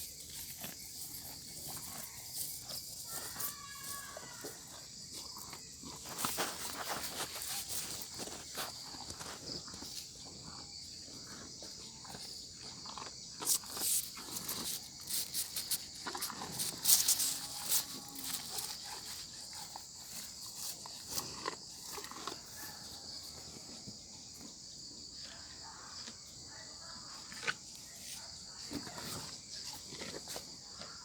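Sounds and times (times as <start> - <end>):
insects chirring: 0.0 - 31.0
footsteps on ground: 5.8 - 10.0.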